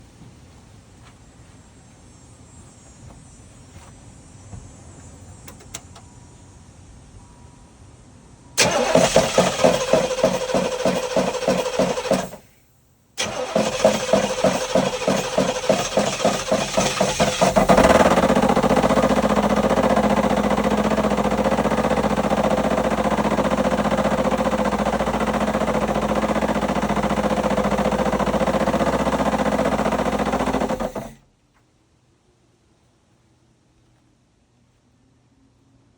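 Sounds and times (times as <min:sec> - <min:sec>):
car engine running: 0:08.6 - 0:12.5, 0:13.2 - 0:31.2
engine cranking on starter: 0:08.6 - 0:12.5, 0:13.2 - 0:31.3.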